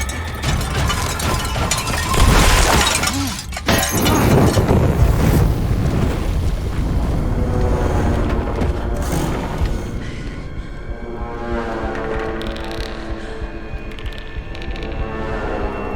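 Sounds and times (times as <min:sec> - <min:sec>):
loud crashing and shattering: 0:00.0 - 0:10.0.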